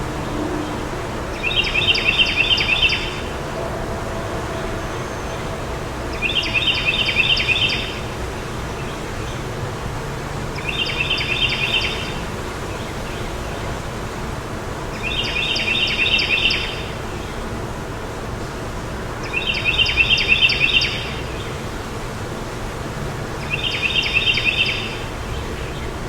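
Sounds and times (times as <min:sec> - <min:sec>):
wind noise: 0:00.0 - 0:06.1
songbird trilling: 0:01.3 - 0:03.3, 0:23.4 - 0:25.0.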